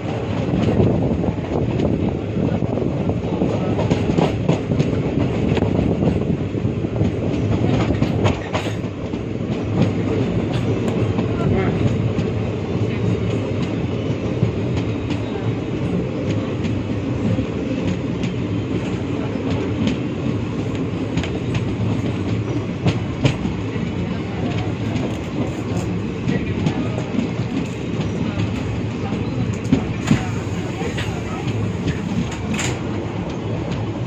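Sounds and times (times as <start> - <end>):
train wheels rumbling on track: 0.0 - 34.0.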